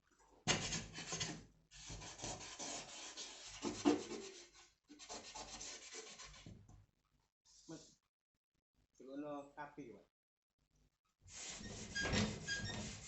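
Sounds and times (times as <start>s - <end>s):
rasping abrasive rubbing: 11.4s - 13.0s.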